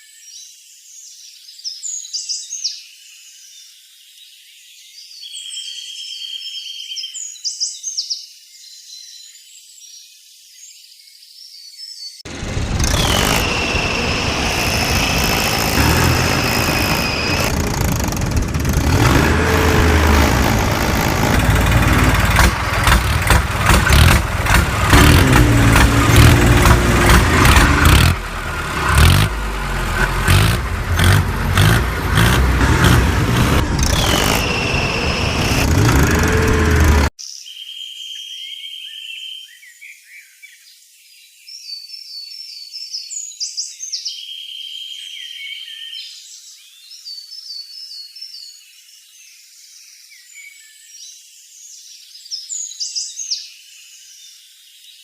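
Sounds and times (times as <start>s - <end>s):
falling whine: 12.3s - 37.1s
vehicle engine revving: 12.3s - 37.1s.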